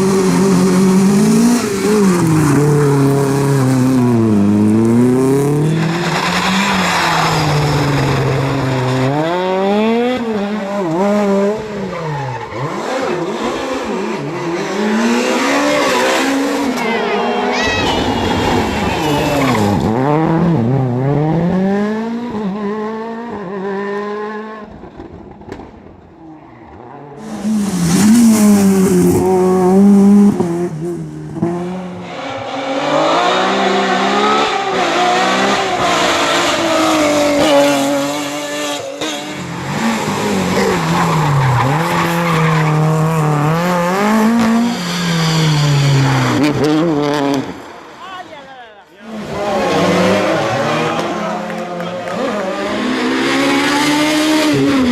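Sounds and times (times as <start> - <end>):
rally car engines revving: 0.0 - 48.3, 49.0 - 54.9
loud rush of noise: 14.7 - 20.6, 27.2 - 30.8.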